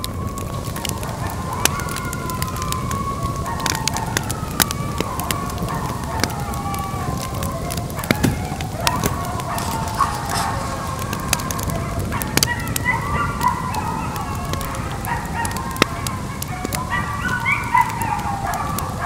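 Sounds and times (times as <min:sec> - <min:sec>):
coyotes howling and yipping: 0:00.0 - 0:19.0
sharp crackling clicks: 0:00.0 - 0:19.0.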